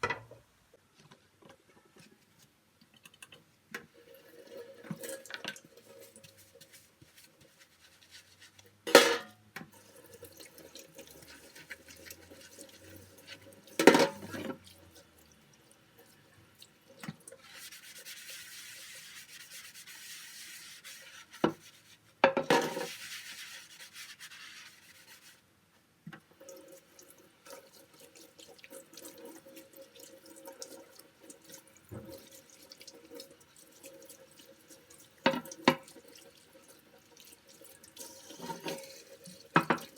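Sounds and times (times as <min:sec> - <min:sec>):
water running in a sink: 0:03.9 - 0:08.6, 0:09.7 - 0:25.4, 0:26.2 - 0:39.9
knocks and clatters of handling: 0:13.8 - 0:14.6.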